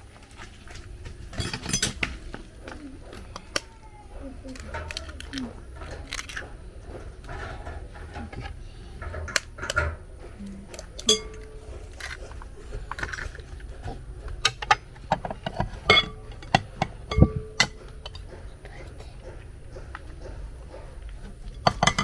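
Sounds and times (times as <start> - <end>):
utensils and dishes clinking: 0.0 - 22.0.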